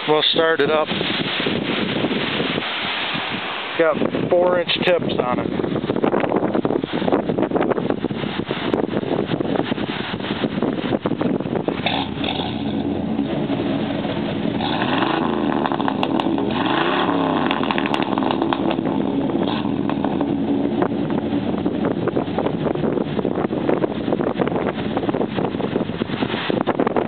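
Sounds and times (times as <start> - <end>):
truck engine idling and revving: 11.6 - 26.5.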